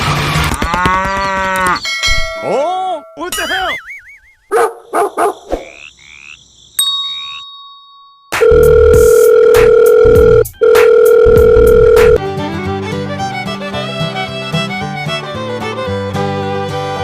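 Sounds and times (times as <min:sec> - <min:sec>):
short beeps: 0:08.4 - 0:12.2
instrumental music: 0:08.4 - 0:17.0.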